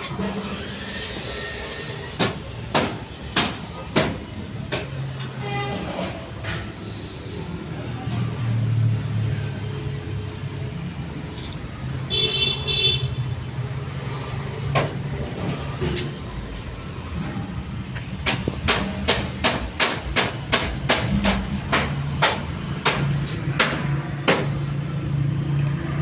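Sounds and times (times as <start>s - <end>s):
hammer strikes: 2.2s - 5.1s, 18.0s - 24.7s.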